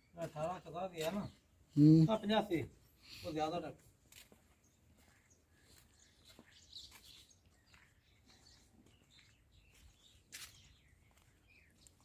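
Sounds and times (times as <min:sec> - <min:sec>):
faint bird chirps: 0:04.5 - 0:12.0.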